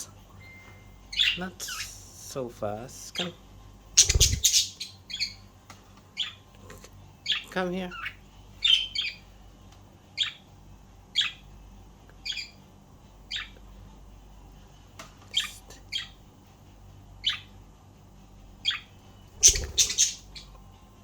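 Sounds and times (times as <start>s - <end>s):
budgerigars chirping: 1.1s - 1.5s, 4.0s - 5.4s, 7.3s - 9.2s, 11.2s - 11.4s, 12.2s - 12.6s, 17.2s - 17.5s, 18.6s - 20.5s.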